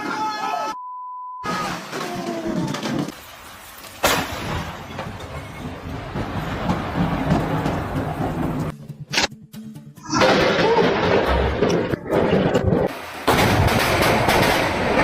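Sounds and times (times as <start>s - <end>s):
rain: 1.8s - 8.6s
loud thunder crack: 13.3s - 15.0s.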